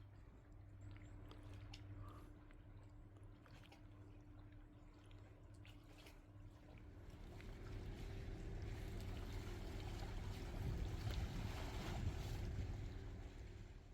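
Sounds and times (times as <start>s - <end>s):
engine running with low hum: 6.7s - 13.9s.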